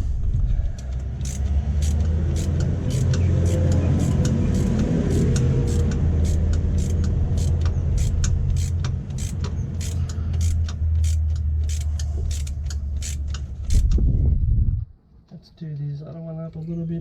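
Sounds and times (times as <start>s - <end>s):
steady low hum: 0.0s - 14.9s
socket ratchet clicking: 0.8s - 14.0s.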